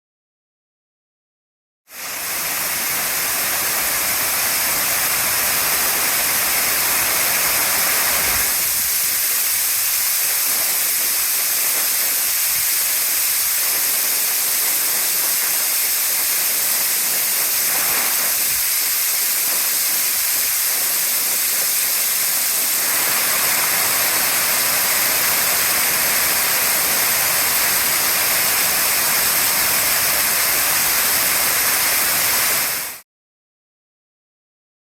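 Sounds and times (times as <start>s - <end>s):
waterfall rushing: 2.0s - 8.8s, 22.6s - 33.0s.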